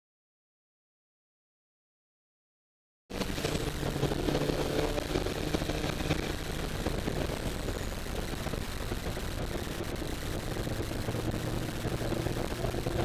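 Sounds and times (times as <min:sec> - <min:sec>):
distorted car engine running: 0:03.1 - 0:13.0.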